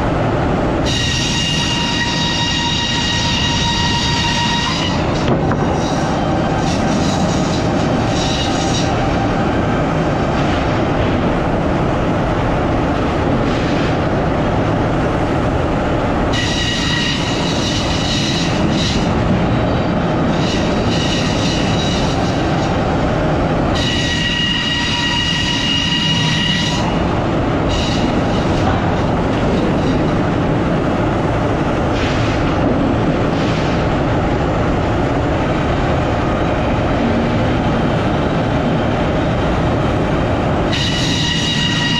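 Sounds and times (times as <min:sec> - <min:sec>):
sawmill machinery running: 0:16.3 - 0:34.3.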